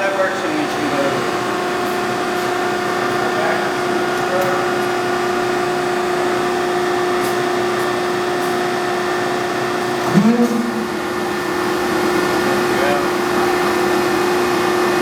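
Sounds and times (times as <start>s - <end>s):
constant whine: 0.0s - 15.0s
hydraulic pump humming: 0.0s - 15.0s.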